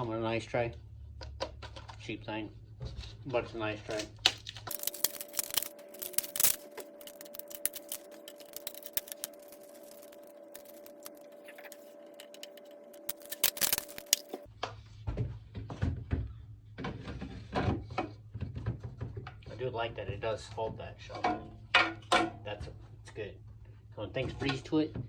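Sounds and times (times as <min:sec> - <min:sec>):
steady hum: 0:04.6 - 0:14.5.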